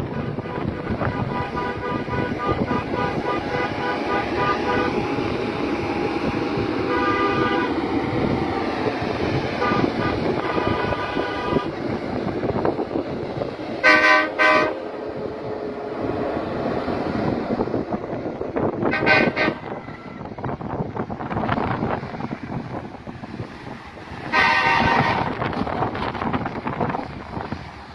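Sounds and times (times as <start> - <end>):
heavy truck engine and road noise: 0.0 - 27.9
air horn double blasts: 0.4 - 5.2, 6.8 - 7.8, 9.6 - 11.8, 13.8 - 14.9, 18.8 - 20.2, 24.2 - 25.4.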